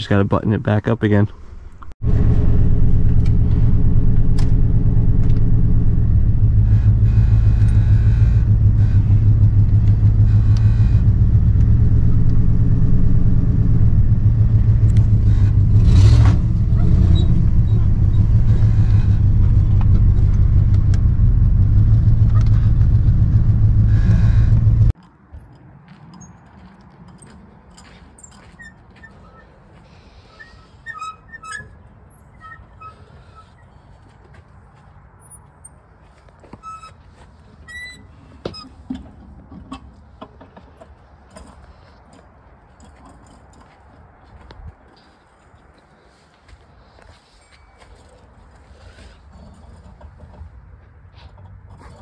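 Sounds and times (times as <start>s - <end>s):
car engine idling: 2.0s - 25.0s.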